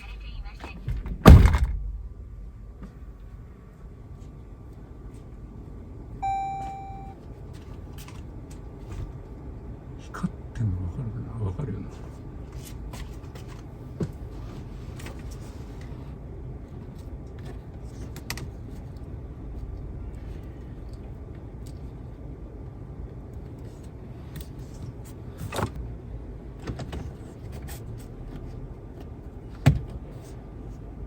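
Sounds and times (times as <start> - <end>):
car cabin hum: 6.2 - 7.2.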